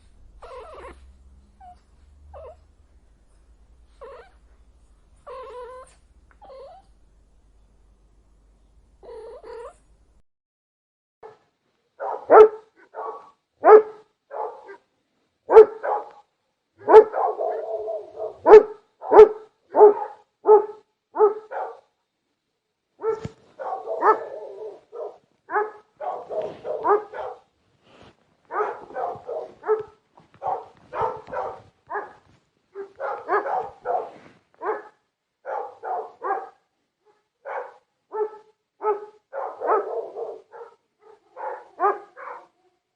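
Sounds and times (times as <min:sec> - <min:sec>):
dog barking: 0:11.2 - 0:11.4, 0:12.0 - 0:14.8, 0:15.5 - 0:21.9, 0:23.0 - 0:27.5, 0:28.5 - 0:42.6.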